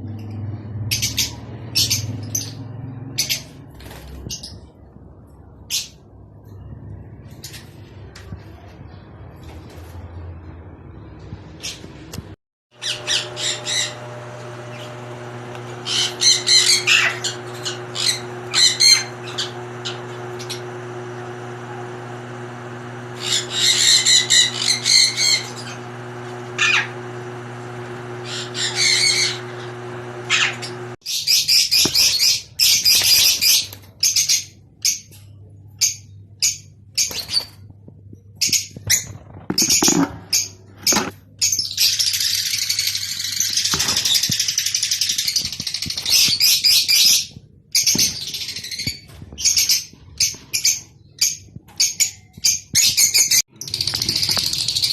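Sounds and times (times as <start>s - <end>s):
lovebirds chattering shrilly: 12.8s - 35.1s, 38.4s - 54.9s.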